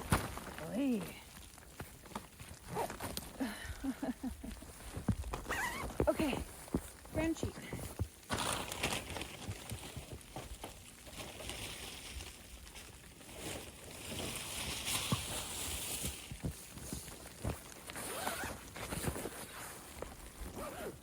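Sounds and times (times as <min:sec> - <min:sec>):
zipper being drawn slowly: 0:18.0 - 0:21.0.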